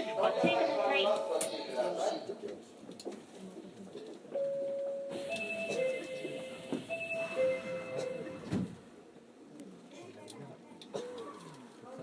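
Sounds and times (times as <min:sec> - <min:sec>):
electronic door chime tones: 0:05.1 - 0:08.5
sliding doors thudding shut: 0:08.4 - 0:08.8.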